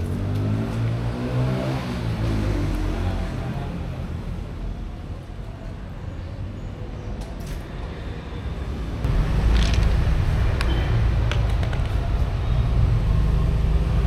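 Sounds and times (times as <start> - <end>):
passing vehicle engine: 0.0 - 4.1
road traffic rumble: 0.0 - 14.0.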